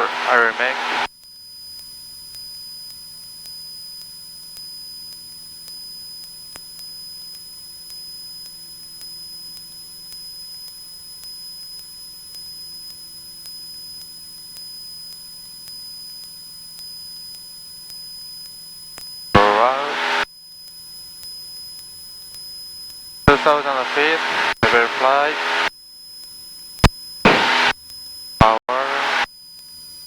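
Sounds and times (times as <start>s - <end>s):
high whine: 0.0s - 1.1s, 19.4s - 20.3s, 23.3s - 25.7s, 27.3s - 27.7s, 28.4s - 29.3s
intercom hiss: 0.0s - 1.1s, 19.4s - 20.3s, 23.3s - 25.7s, 27.3s - 27.7s, 28.4s - 29.3s.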